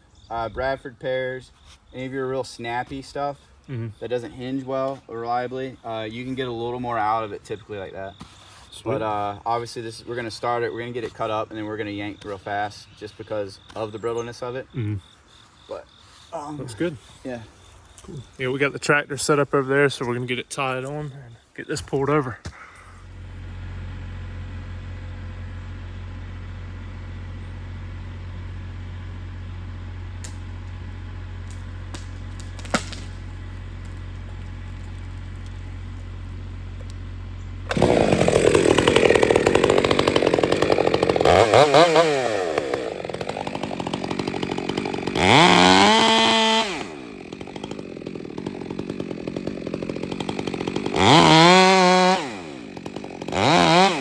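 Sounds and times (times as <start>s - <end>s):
low engine hum: 22.9s - 38.0s
chainsaw cutting and revving: 23.0s - 54.0s.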